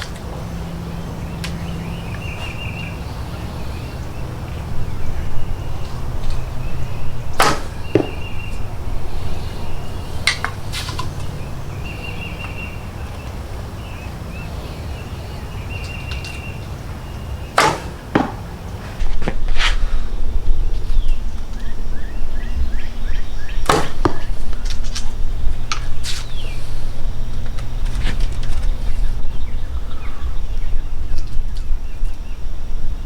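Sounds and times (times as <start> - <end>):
arrow striking target: 7.4 - 8.6, 17.6 - 18.5, 23.6 - 24.3
bow string snapping: 7.4 - 8.7.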